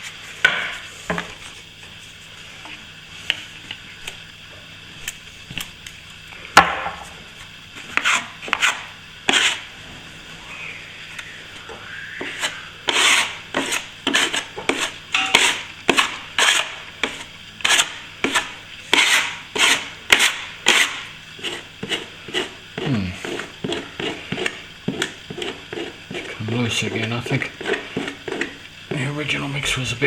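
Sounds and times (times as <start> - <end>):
plastering tool scraping plaster: 7.9 - 9.7, 12.2 - 29.1.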